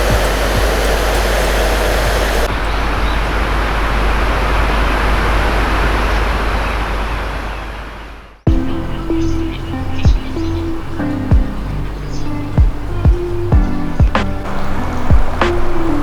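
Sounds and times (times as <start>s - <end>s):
water rushing through floodgates: 0.0s - 8.2s.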